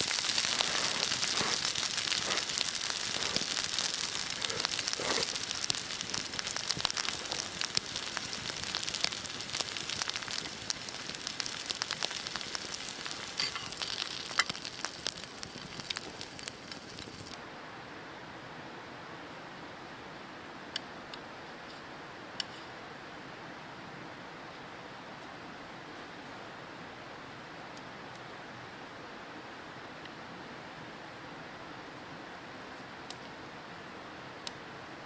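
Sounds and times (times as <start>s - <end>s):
campfire crackling and popping: 0.0s - 17.4s
steady hiss: 0.0s - 35.0s.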